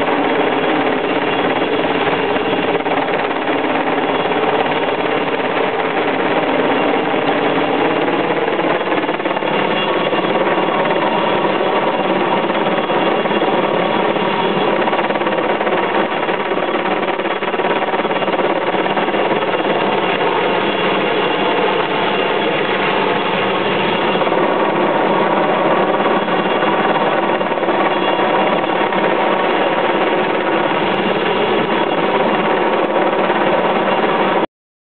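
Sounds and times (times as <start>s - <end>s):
helicopter droning: 0.0s - 34.4s.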